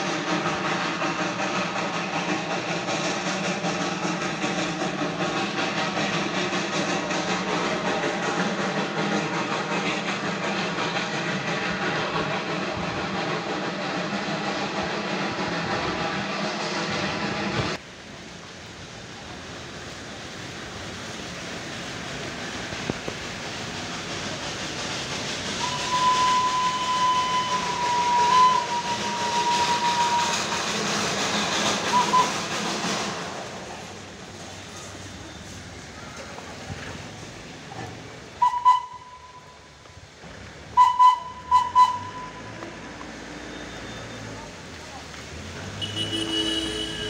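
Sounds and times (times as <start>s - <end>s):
train rushing noise: 0.0s - 47.0s
toy train whistle blasts: 25.6s - 30.7s, 31.9s - 32.4s, 38.4s - 39.6s, 40.8s - 42.6s, 45.8s - 47.0s.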